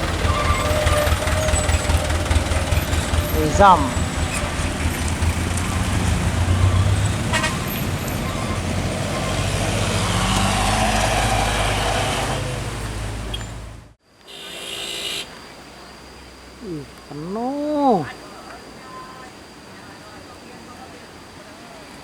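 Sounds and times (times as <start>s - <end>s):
vehicle horn toot: 0.0s - 4.4s, 5.6s - 10.3s, 14.3s - 15.4s
diesel engine running loud: 0.0s - 14.0s.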